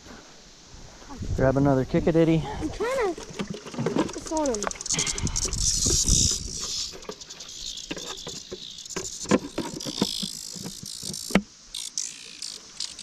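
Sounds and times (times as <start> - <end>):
cicadas droning: 0.0 - 13.0
handling clicks and knocks: 3.1 - 4.9.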